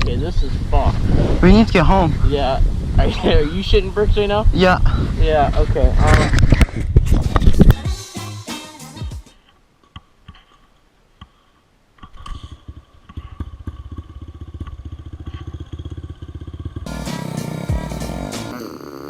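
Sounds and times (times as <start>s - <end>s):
dirt bike engine running: 13.8s - 18.6s.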